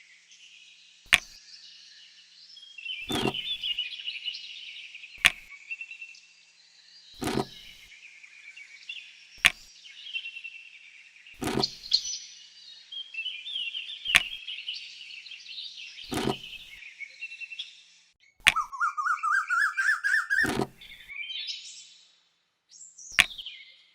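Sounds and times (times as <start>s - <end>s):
birds chirping and trilling: 0.3s - 23.9s
sharp knocks: 3.1s - 3.5s, 7.2s - 7.6s, 11.4s - 11.8s, 16.1s - 16.5s
bird warbling call rising: 18.5s - 21.0s.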